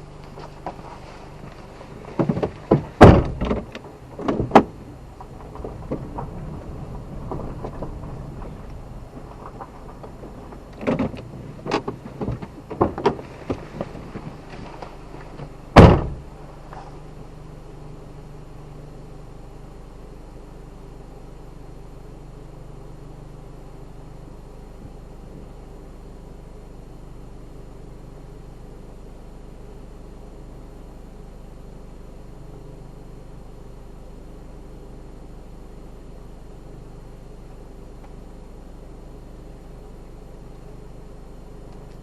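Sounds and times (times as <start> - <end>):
low hum: 0.0 - 42.0
loud thump: 2.2 - 14.3, 15.8 - 16.3.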